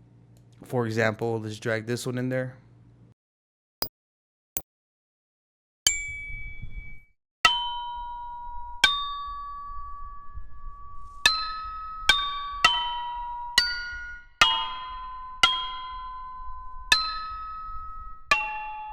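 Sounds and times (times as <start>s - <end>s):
bell-like percussion notes: 7.5s - 18.9s.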